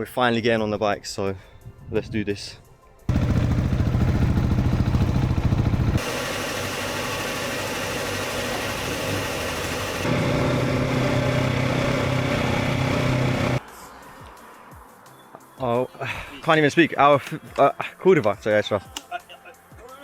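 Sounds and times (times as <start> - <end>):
motorcycle engines running: 3.1 - 13.6.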